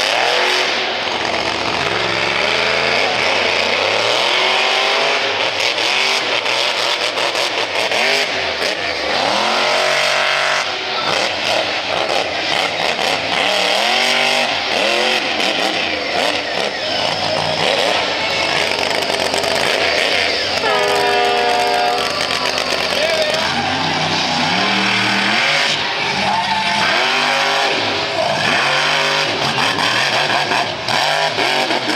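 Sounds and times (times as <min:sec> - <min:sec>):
monster truck engine revving: 0:00.0 - 0:31.9.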